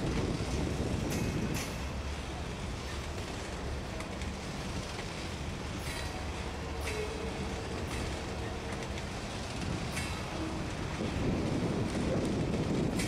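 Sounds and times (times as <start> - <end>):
freight train wheels rumbling: 0.0 - 13.0
sharp wheel clacks: 9.8 - 10.4.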